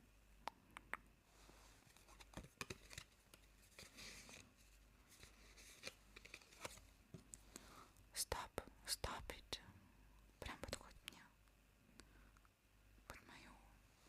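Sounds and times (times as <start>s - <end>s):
crinkle: 1.7s - 7.4s.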